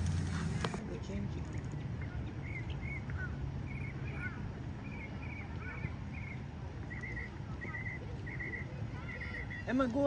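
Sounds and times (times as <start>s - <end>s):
low outdoor rumble: 0.0s - 9.8s
bird chirping: 2.0s - 10.0s.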